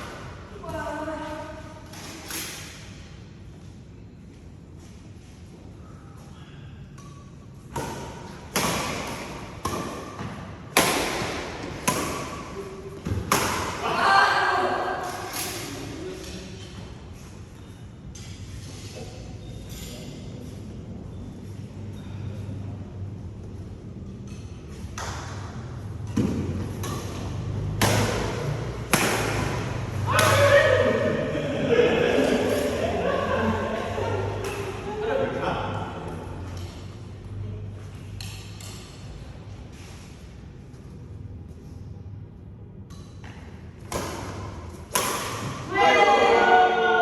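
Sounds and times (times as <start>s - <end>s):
badminton racket hitting shuttlecock: 7.7s - 13.9s, 26.2s - 31.1s, 33.9s - 34.9s, 43.9s - 45.8s.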